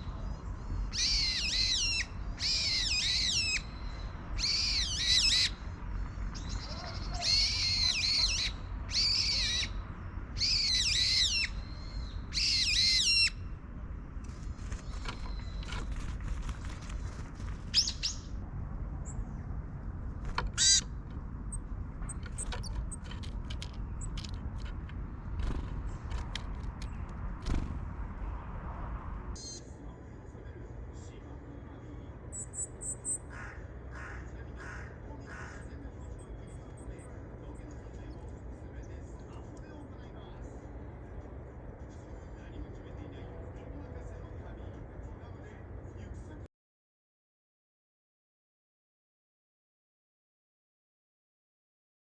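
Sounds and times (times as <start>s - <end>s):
bird calling with buzzy calls: 0.8s - 9.8s, 10.4s - 13.4s, 20.5s - 23.1s, 29.4s - 29.8s, 32.3s - 39.6s.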